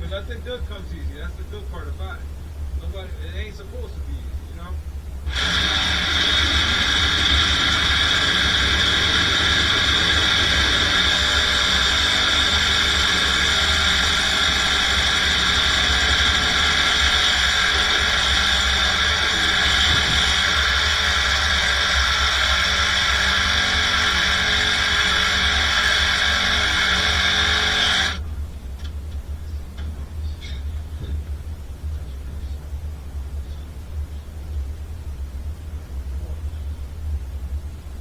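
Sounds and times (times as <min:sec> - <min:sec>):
power tool motor whining: 0:05.3 - 0:28.2.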